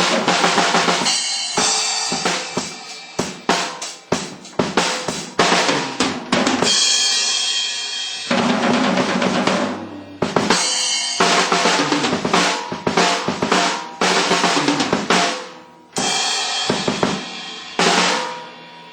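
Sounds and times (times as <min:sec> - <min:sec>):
hi-hat: 0:00.0 - 0:06.0
crashing cymbals: 0:00.0 - 0:18.9.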